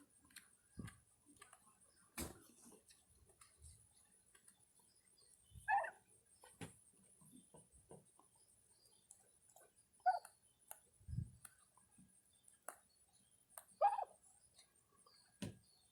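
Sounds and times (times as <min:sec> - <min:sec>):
turkey call: 0:05.7 - 0:06.0, 0:10.0 - 0:10.3, 0:13.8 - 0:14.2
turkeys pecking: 0:13.8 - 0:14.1.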